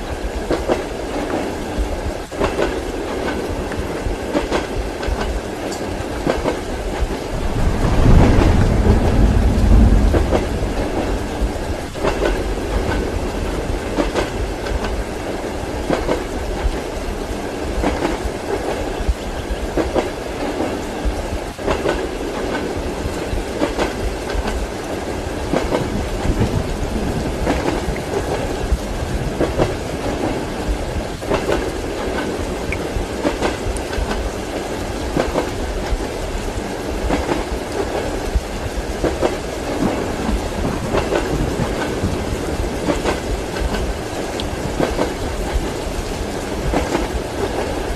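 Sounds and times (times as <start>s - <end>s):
rain and running noise hiss: 0.0s - 47.9s
train wheels clacking over rail joints: 2.2s - 16.8s, 19.8s - 24.8s, 25.5s - 36.1s, 37.0s - 47.9s
low rumble: 7.2s - 14.7s.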